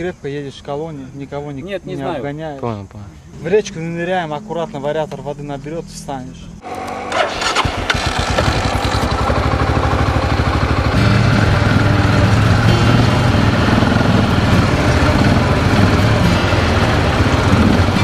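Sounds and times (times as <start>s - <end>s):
quad bike engine idling: 4.2s - 18.0s.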